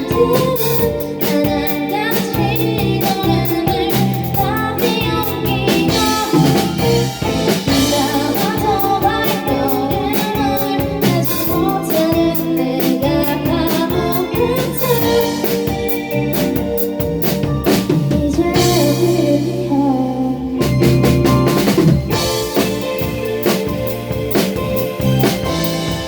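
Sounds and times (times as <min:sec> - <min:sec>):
drum kit beat: 0:00.0 - 0:19.5, 0:20.6 - 0:26.0
indie pop band playing: 0:00.0 - 0:26.0
person singing melody: 0:01.9 - 0:15.5.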